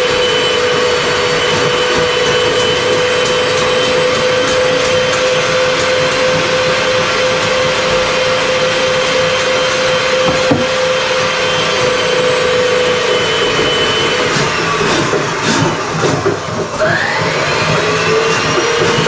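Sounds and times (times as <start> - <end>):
power tool electric motor running: 0.0 - 15.5
knock: 10.2 - 10.8.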